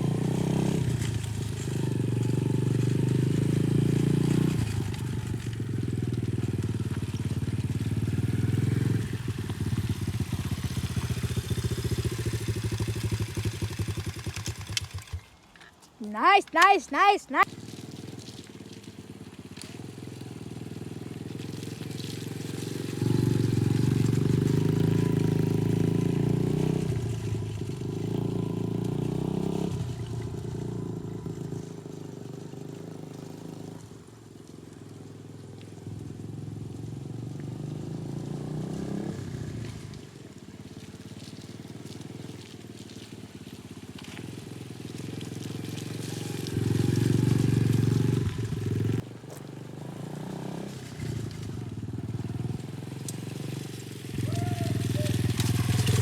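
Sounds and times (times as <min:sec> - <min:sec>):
dirt bike engine revving: 0:00.0 - 0:15.3, 0:19.7 - 0:30.0, 0:45.1 - 0:56.0.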